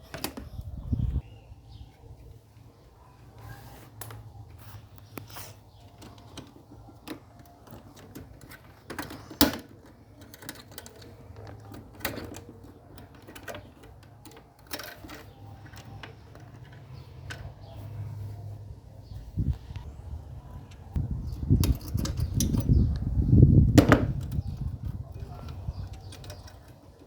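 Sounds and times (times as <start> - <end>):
tools and parts clicking and tapping: 4.0 - 17.8, 20.7 - 23.1, 23.8 - 27.0.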